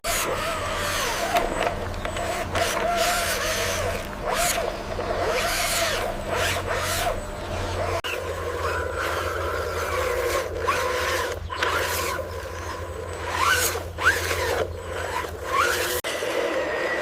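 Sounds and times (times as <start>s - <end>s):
small electric motors whining: 0.0s - 17.0s.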